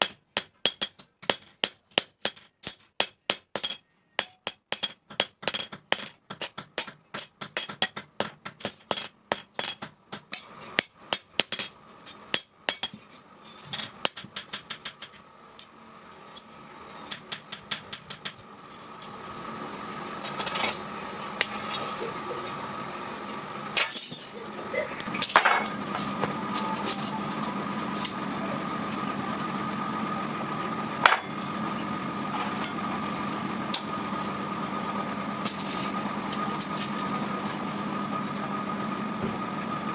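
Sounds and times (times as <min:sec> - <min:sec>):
hammer striking steel: 0:00.0 - 0:15.7, 0:16.3 - 0:18.4, 0:25.2 - 0:28.2, 0:31.0 - 0:31.5
steady motor hum: 0:04.2 - 0:39.9.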